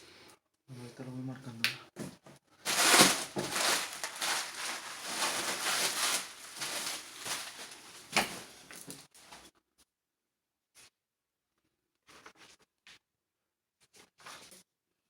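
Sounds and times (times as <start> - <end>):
packaging rustling and crinkling: 2.7 - 9.4.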